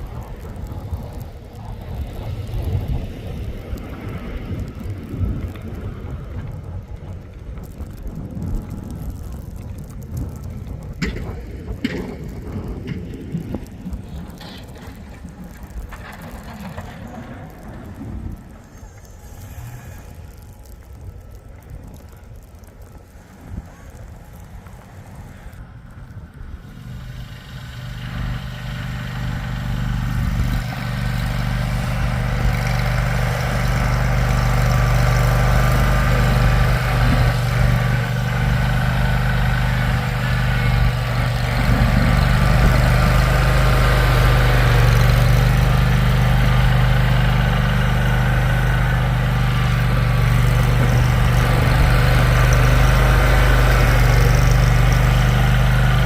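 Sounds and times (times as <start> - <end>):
vehicle engine running: 26.6 - 56.0.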